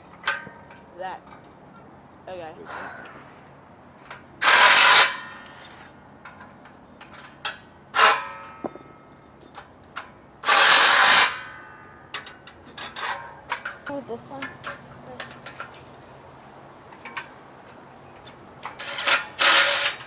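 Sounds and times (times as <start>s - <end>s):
power drill driving bolts: 4.4s - 6.0s, 10.4s - 11.6s, 17.0s - 20.0s.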